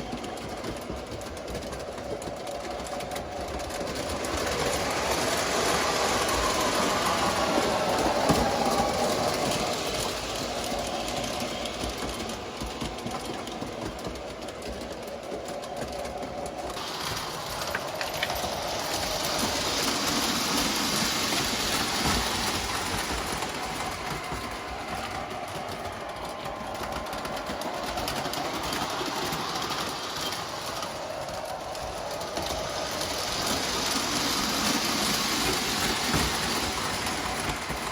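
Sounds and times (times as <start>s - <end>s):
model train motor whirring: 0.0s - 37.9s.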